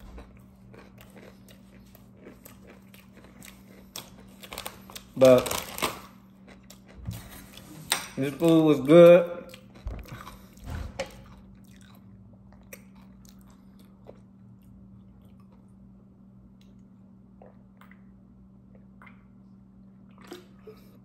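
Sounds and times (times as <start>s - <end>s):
person chewing: 0.0s - 8.5s, 9.4s - 15.9s.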